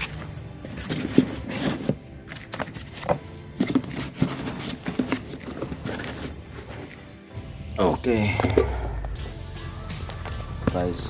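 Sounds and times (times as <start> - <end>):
parts being handled: 0.0 - 7.2.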